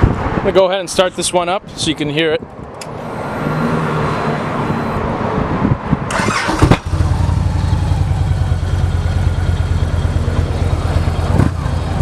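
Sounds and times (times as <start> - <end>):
motorcycle engine idling: 6.9 - 12.0.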